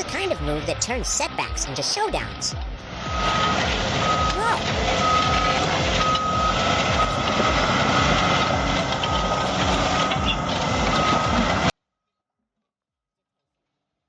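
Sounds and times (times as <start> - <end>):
heavy machinery engine running: 0.0 - 11.7
reversing alarm beeping: 2.6 - 11.7.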